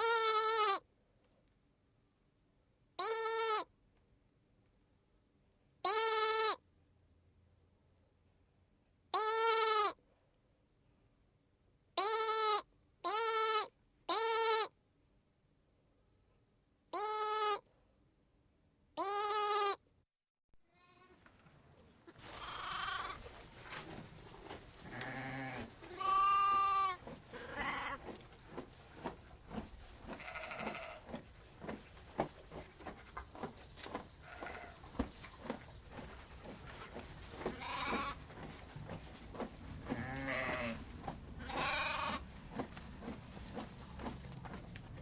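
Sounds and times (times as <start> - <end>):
goat bleating: 0.0 - 0.8, 3.0 - 3.6, 5.8 - 6.6, 9.1 - 10.0, 12.0 - 14.7, 17.0 - 17.6, 19.0 - 19.8, 22.3 - 23.3, 24.8 - 28.1, 30.0 - 31.1, 34.2 - 34.9, 37.4 - 38.2, 39.8 - 40.8, 41.4 - 42.3
varied animal calls: 24.9 - 28.2, 34.2 - 34.9, 37.4 - 38.3, 41.4 - 42.3.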